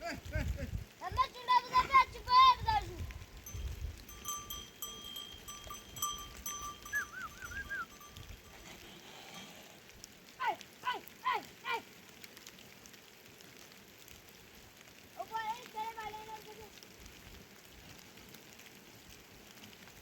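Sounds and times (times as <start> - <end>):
livestock bells clinking: 3.3 - 9.5
short falling calls: 4.1 - 8.4.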